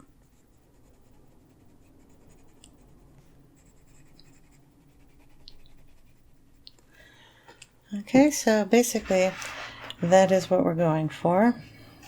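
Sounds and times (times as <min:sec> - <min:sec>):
colored pencil scratching paper: 0:00.0 - 0:06.6
light pencil ticks: 0:02.5 - 0:02.8, 0:05.4 - 0:05.8.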